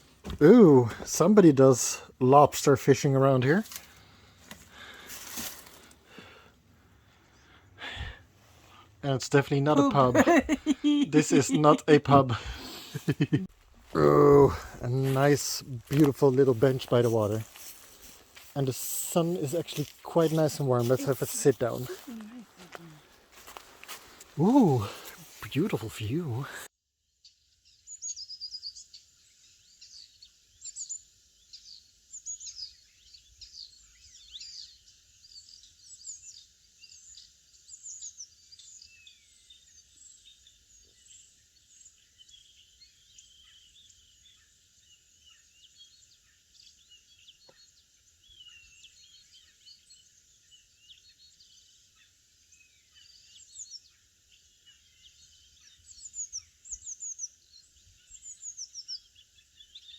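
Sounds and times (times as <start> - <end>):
songbirds chirping and singing: 5.7 - 26.7, 29.7 - 59.9.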